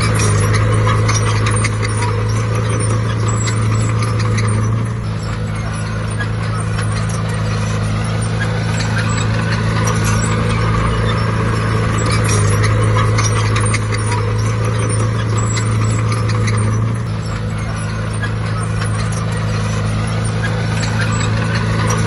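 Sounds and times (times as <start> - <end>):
heavy diesel engine running: 0.0 - 22.0
light metallic rattling: 0.0 - 22.0.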